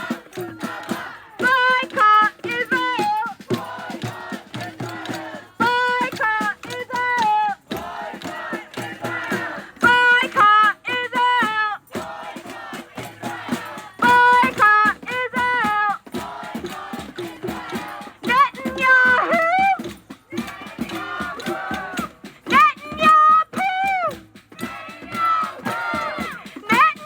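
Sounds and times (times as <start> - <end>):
crowd chanting: 0.0 - 22.7, 24.5 - 27.0
lead voice calling phrases: 14.0 - 16.0, 18.2 - 27.0.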